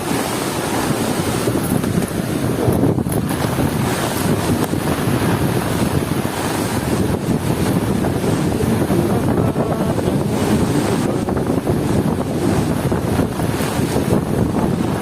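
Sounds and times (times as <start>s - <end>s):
heavy rain: 0.0s - 15.0s
wind gusts buffeting microphone: 0.0s - 15.0s.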